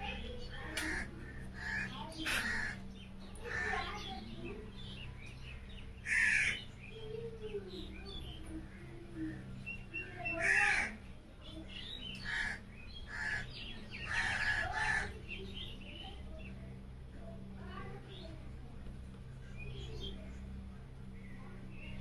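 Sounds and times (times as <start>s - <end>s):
bird calls: 0.0s - 16.7s
steady low hum: 0.0s - 22.0s.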